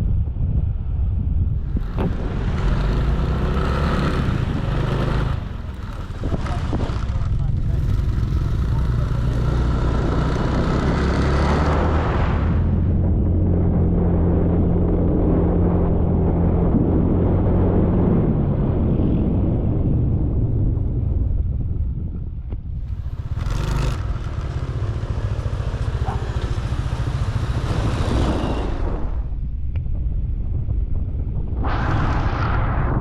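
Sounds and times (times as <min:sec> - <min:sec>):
motor scooter engine running: 0:01.5 - 0:12.0, 0:22.8 - 0:29.1
loud rushing noise: 0:01.5 - 0:13.0, 0:22.8 - 0:29.5, 0:31.5 - 0:33.0.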